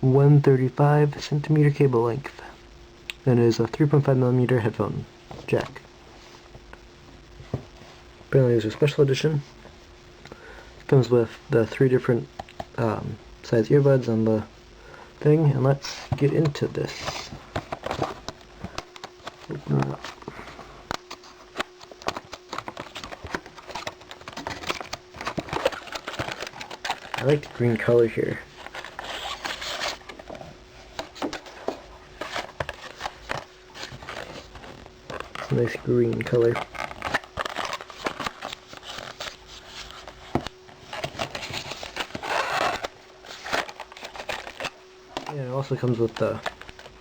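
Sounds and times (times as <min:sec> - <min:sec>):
packaging being opened: 0:16.0 - 0:47.0.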